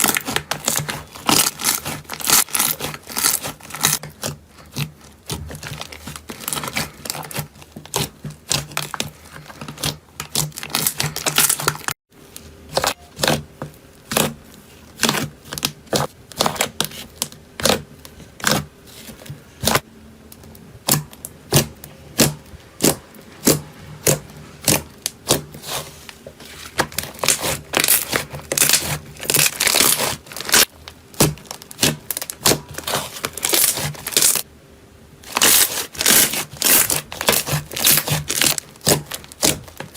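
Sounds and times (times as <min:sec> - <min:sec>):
slime crackling and popping: 0:00.0 - 0:11.9, 0:26.9 - 0:34.4, 0:35.3 - 0:39.9.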